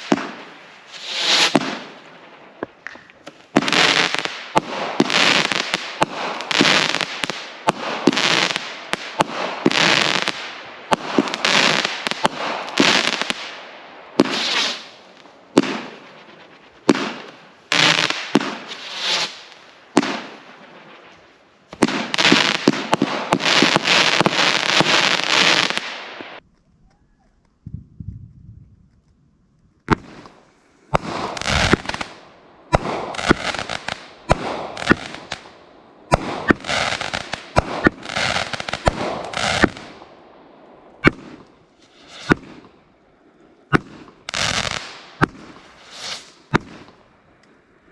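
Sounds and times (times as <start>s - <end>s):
firework crackling breaks: 0.0s - 2.0s, 2.7s - 13.6s, 14.2s - 26.4s, 29.9s - 40.0s.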